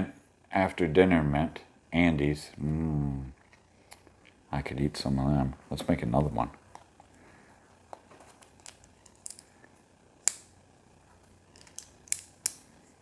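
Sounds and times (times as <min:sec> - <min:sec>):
plastic pieces clicking together: 0:08.5 - 0:09.5, 0:11.5 - 0:12.6.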